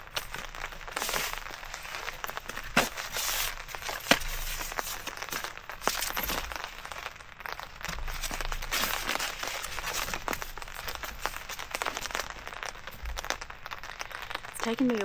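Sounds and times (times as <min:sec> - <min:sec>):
camping gear rustling: 0:00.0 - 0:13.4.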